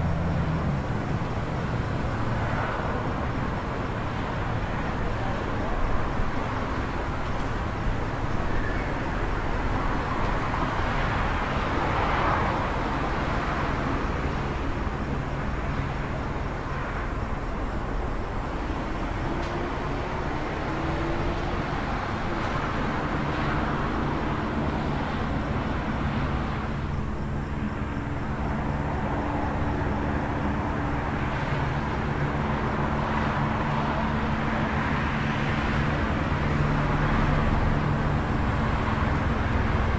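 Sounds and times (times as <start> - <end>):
road traffic noise: 0.0 - 39.9
vehicles passing: 0.0 - 39.9.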